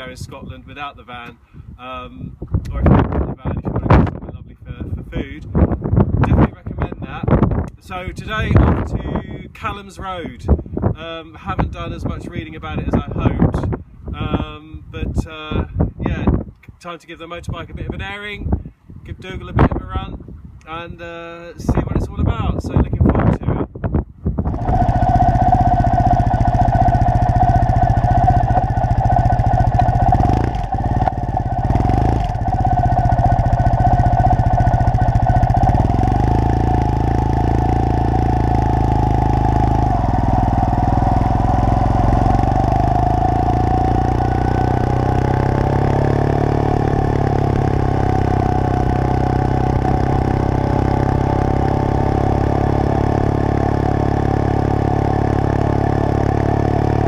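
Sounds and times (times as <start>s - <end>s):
motorcycle engine running: 24.4s - 57.0s.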